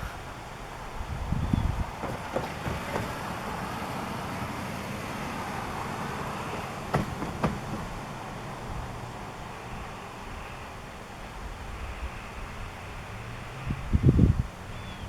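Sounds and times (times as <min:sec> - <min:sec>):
diesel locomotives rumbling: 0:00.0 - 0:15.0
sharp knocks: 0:02.0 - 0:03.5, 0:06.9 - 0:08.1.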